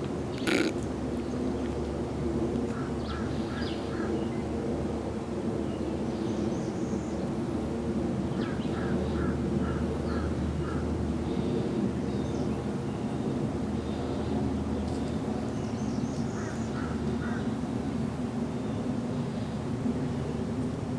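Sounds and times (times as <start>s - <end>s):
steady low rumble: 0.0s - 20.9s
bird calling in short notes: 0.3s - 0.8s.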